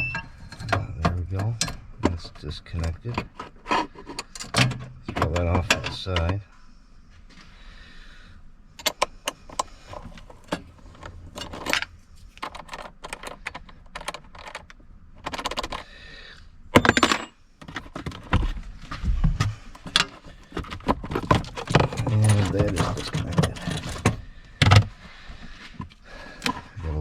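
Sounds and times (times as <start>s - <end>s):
hand tools clinking on metal: 16.8s - 17.4s, 21.6s - 24.2s
metal clatter: 16.8s - 18.4s, 19.4s - 24.8s.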